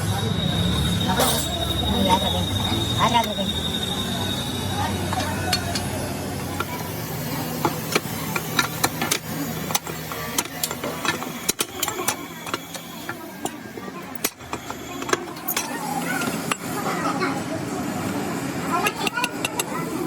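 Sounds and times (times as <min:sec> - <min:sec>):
sharp clicks and knocks: 0:07.6 - 0:13.6.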